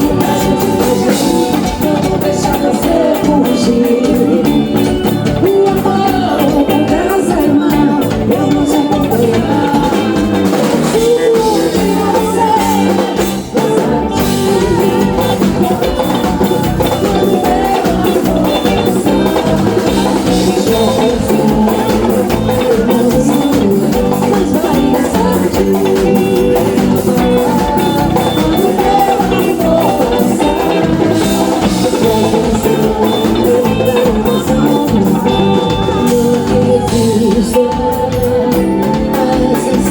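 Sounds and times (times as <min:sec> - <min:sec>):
band playing upbeat song: 0:00.0 - 0:39.9
drum kit and percussion beat: 0:00.0 - 0:39.9
person singing: 0:00.0 - 0:39.9.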